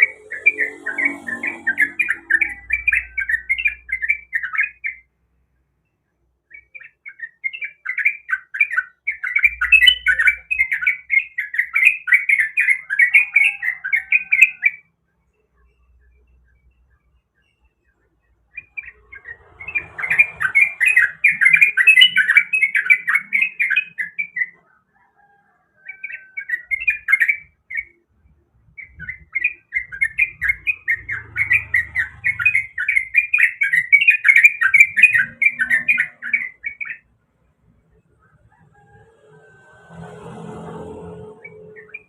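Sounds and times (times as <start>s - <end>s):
bird singing bubbly chatter: 0.0s - 5.1s, 26.0s - 37.1s.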